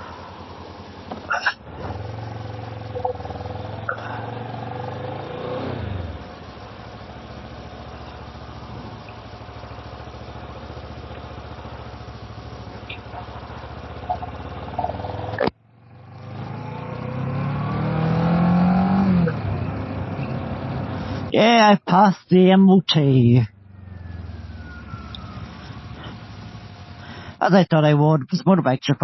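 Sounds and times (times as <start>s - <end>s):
motorbike engine running: 0.0s - 21.3s.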